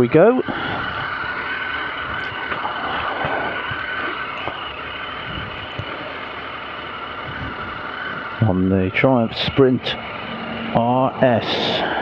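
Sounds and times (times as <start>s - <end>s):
motorcycle engine running: 0.0s - 12.0s
wind noise: 2.0s - 6.2s, 7.2s - 8.5s.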